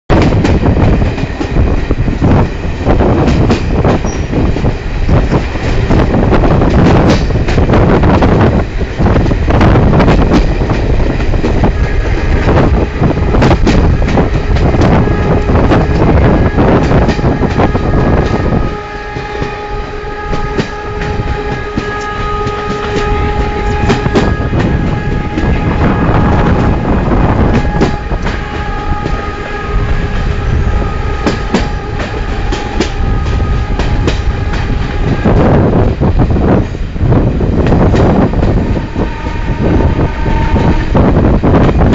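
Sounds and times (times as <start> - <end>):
train wheels clattering on rails: 0.1 - 41.9
train horn blast: 11.9 - 36.5, 37.9 - 41.9.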